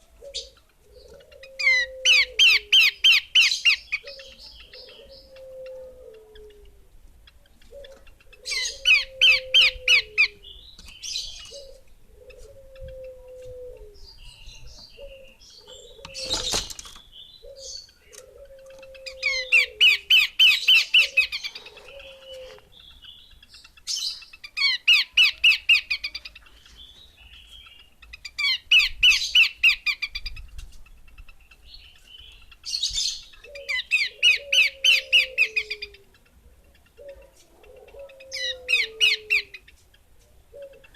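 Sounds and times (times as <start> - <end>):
bird chattering calls: 7.3 - 13.2, 14.8 - 39.8.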